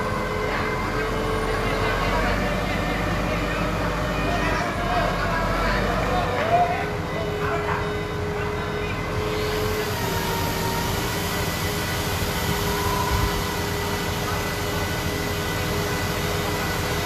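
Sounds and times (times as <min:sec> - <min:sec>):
machinery running: 0:00.0 - 0:17.0.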